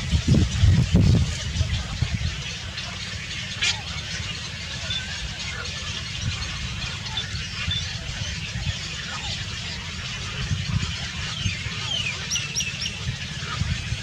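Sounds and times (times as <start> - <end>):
steady low rumble: 0.0 - 4.6
small birds chirping: 0.0 - 14.0.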